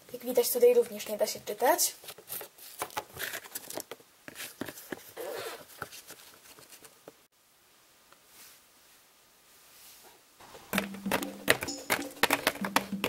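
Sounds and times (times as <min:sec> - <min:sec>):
plastic toy tapping on floor: 0:10.7 - 0:13.0.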